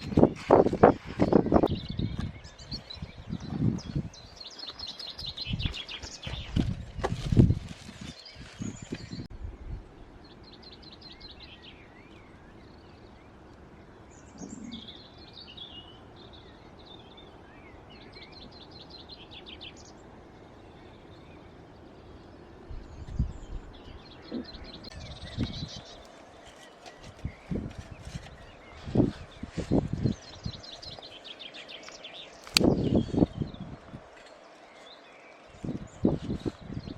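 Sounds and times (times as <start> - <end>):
small birds trilling: 0.0 - 9.3, 10.0 - 36.9
bird chirps: 14.0 - 20.0.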